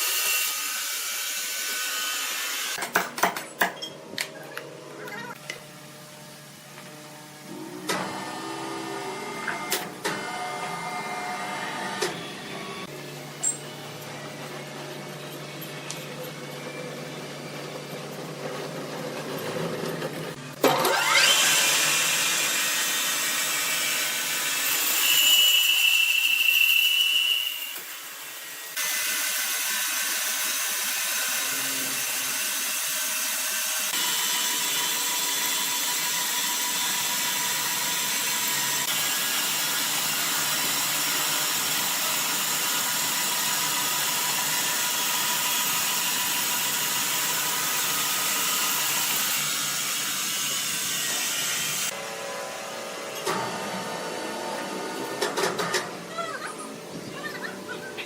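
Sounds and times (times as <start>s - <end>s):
sawmill saw cutting timber: 0.0s - 2.8s, 18.1s - 55.7s.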